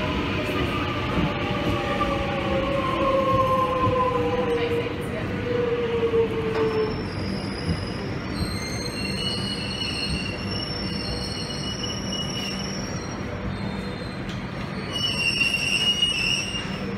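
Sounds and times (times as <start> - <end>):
train carriages rumbling: 0.0 - 16.9
high-pitched metallic squeals: 6.8 - 16.9.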